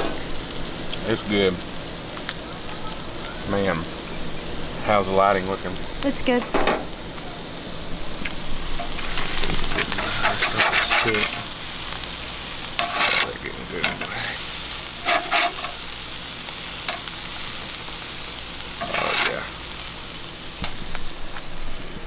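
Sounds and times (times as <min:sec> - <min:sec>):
fish sizzling in a pan: 0:00.0 - 0:22.0
utensil scraping a pan: 0:08.8 - 0:11.5, 0:12.8 - 0:15.9, 0:18.8 - 0:19.5.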